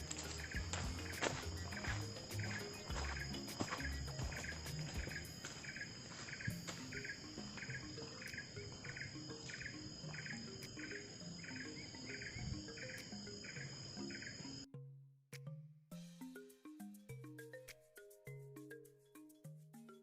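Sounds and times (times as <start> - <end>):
insects buzzing: 0.0 - 14.7.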